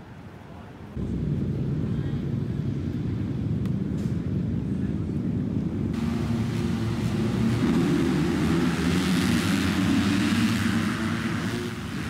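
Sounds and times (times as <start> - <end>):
motocross bike engines running: 6.0 - 12.0
rushing noise: 6.0 - 12.0.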